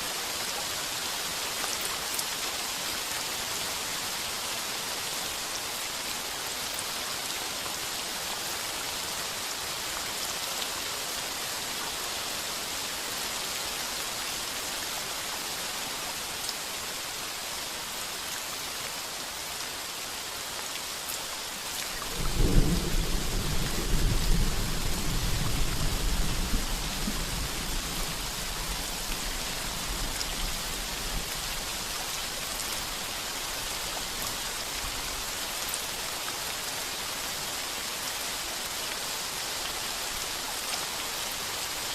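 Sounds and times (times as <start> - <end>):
heavy rain on a tin roof: 0.0 - 41.9
thunder rumble: 22.1 - 27.6.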